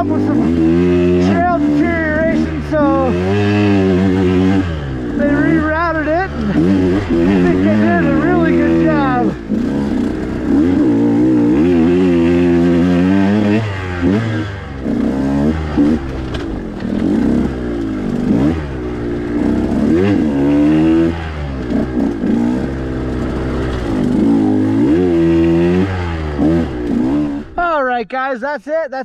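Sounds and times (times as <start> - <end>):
dirt bike engine revving: 0.0 - 27.9.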